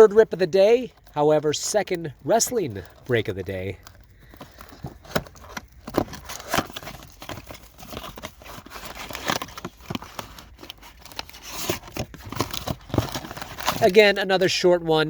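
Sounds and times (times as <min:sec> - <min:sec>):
packaging crinkling and ripping: 0:00.0 - 0:14.6.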